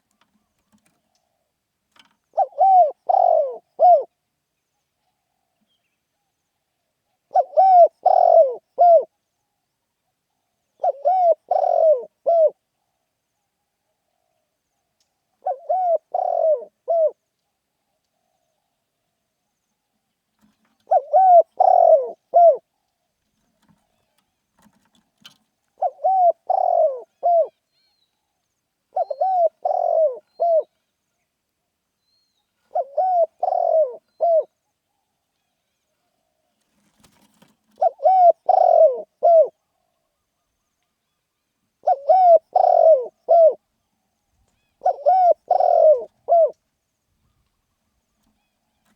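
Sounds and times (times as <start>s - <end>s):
dove cooing: 0.8s - 4.1s, 7.3s - 9.1s, 10.8s - 12.6s, 15.4s - 17.2s, 20.4s - 22.7s, 23.6s - 27.6s, 28.9s - 30.7s, 32.6s - 34.5s, 36.8s - 40.6s, 41.8s - 43.6s, 44.6s - 46.6s.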